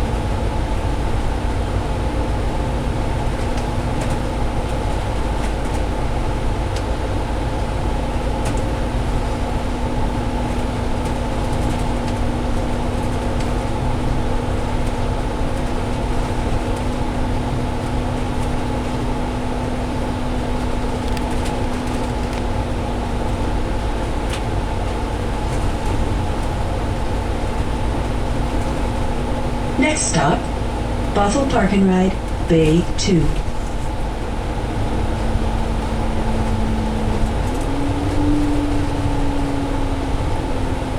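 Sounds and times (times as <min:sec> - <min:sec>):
road rumble and diesel engine: 0:00.0 - 0:40.9
cabin hum: 0:25.0 - 0:40.9.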